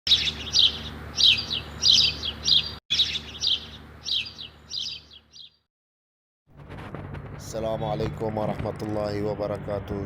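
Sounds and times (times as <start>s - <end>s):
bird chirping: 0.1s - 5.7s.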